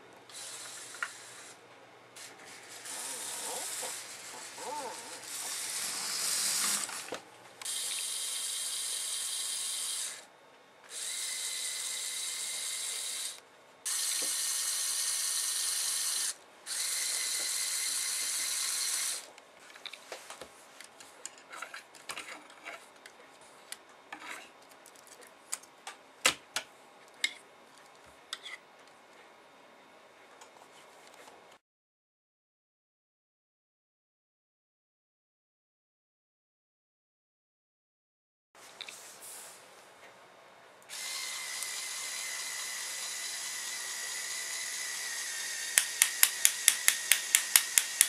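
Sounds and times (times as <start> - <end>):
small motor and gears whining: 0.3 - 1.6, 2.2 - 10.3, 10.9 - 19.3, 40.9 - 48.0.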